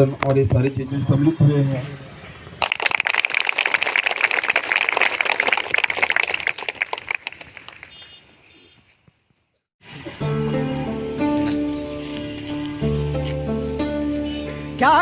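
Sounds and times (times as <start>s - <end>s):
crowd applauding: 2.6s - 8.2s.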